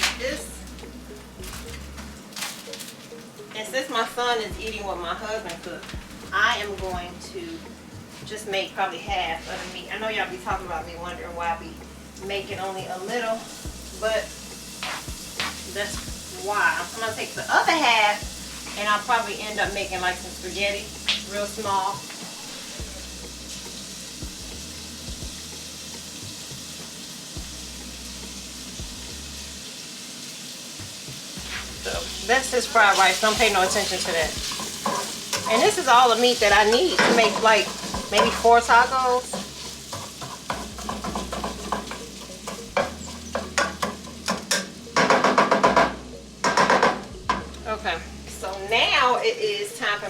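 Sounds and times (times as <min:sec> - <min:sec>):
food sizzling in a frying pan: 0:00.0 - 0:50.0
utensil scraping a pan: 0:09.3 - 0:10.1, 0:14.8 - 0:15.9, 0:31.4 - 0:45.9.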